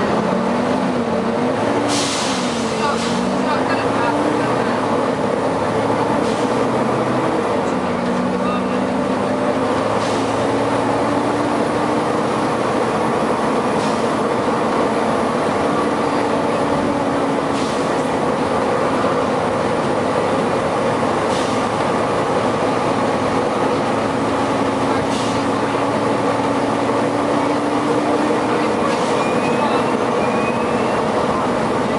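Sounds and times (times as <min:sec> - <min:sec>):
bus cooling fan and engine droning: 0:00.0 - 0:31.9
short air hisses: 0:01.9 - 0:02.7.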